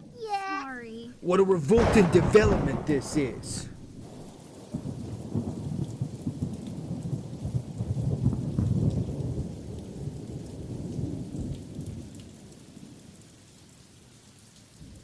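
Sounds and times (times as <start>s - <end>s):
rain patter: 0.0s - 15.0s
low rolling thunder: 1.1s - 12.1s.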